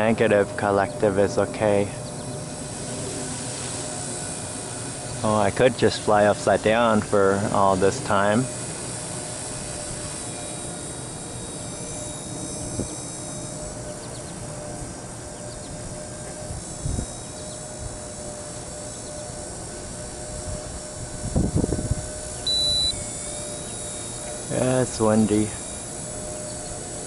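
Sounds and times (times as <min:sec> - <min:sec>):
rc helicopter rotors whining: 0:00.0 - 0:27.0
wind buffeting microphone: 0:12.0 - 0:18.6, 0:19.3 - 0:23.3
short high beep: 0:22.4 - 0:24.6.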